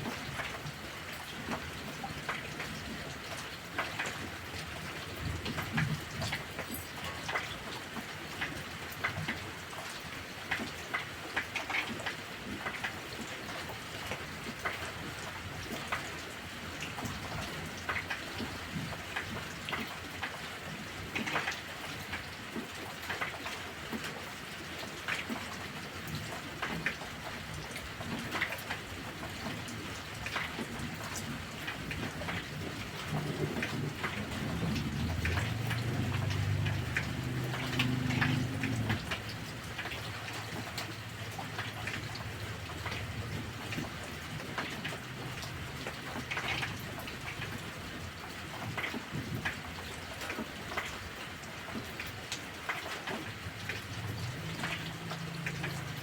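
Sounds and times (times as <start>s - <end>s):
heavy rain falling: 0.0s - 56.0s
low roll of thunder: 32.4s - 39.1s.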